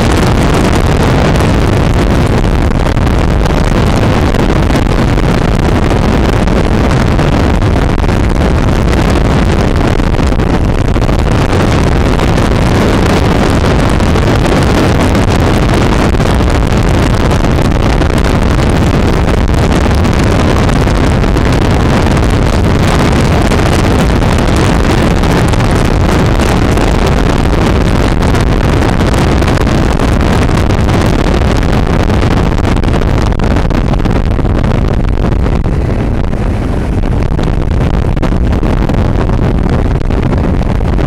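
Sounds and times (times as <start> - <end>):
wind noise on microphone: 0.0 - 41.0
motorcycle running: 34.6 - 41.0.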